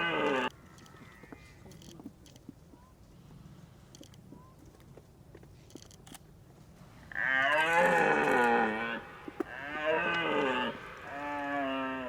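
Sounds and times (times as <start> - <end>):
deer stag roaring: 0.0 - 0.5, 7.1 - 12.0.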